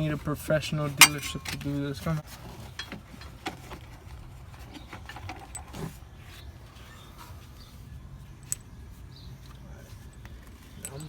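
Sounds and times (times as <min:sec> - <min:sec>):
hand tools clinking on metal parts: 0:00.6 - 0:04.0, 0:09.9 - 0:11.0.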